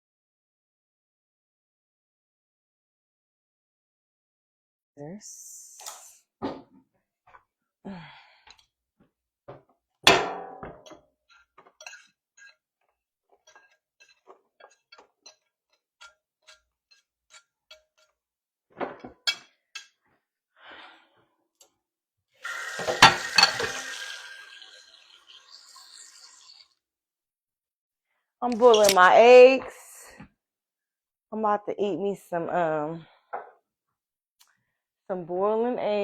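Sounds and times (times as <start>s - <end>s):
loud metal clank: 10.1s - 10.7s
pots and dishes clattering: 10.1s - 12.6s, 13.3s - 18.1s, 18.8s - 20.0s, 22.5s - 24.3s.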